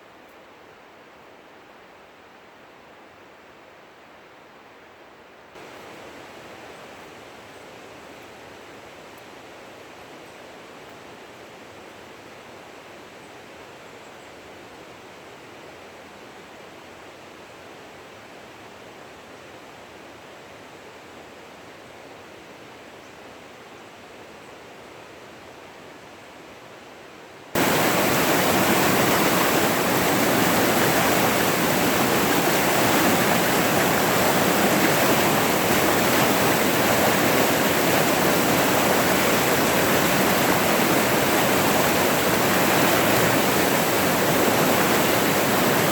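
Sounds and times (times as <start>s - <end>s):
running water rushing: 27.6s - 45.9s.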